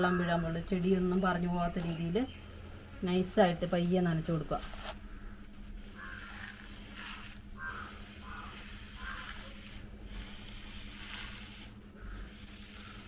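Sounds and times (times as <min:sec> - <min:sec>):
steady low hum: 0:00.0 - 0:13.0
water trickling onto soil: 0:01.7 - 0:13.0.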